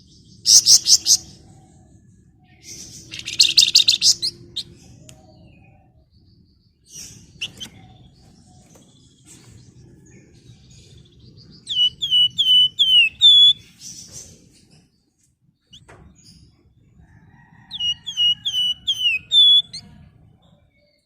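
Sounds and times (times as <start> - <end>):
faint low hum: 0.0 - 21.0
songbird whistling: 2.9 - 4.8, 7.0 - 8.0, 11.5 - 13.8, 17.6 - 20.0.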